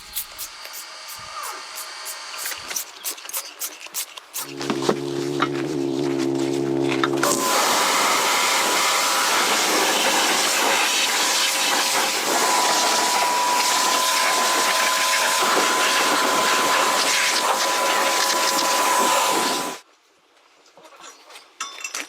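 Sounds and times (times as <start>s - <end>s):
loud hissing noise: 4.4s - 19.8s.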